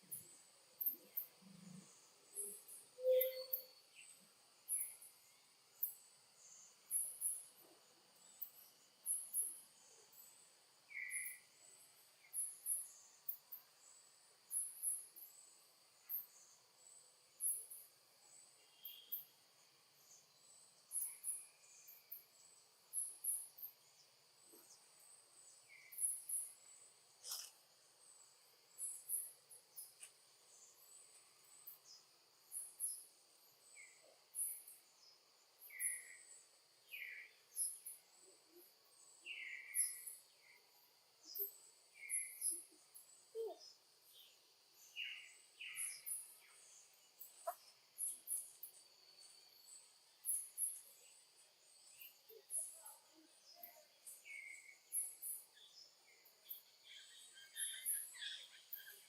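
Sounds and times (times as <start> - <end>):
insects chirping: 0.0 - 59.0
lower chirps: 1.8 - 3.8.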